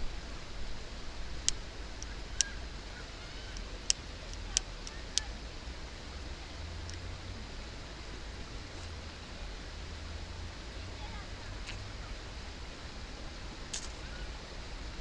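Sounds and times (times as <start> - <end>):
wood fire crackling: 0.0 - 5.3
steady low rumble: 0.0 - 15.0
sharp pops: 13.7 - 14.1.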